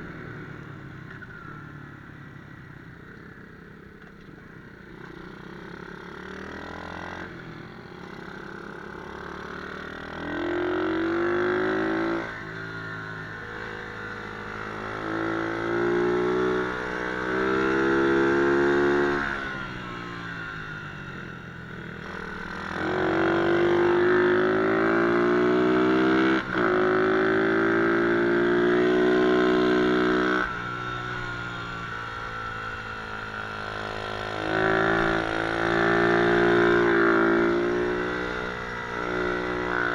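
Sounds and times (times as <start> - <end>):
pit bike engine revving: 9.1 - 39.9.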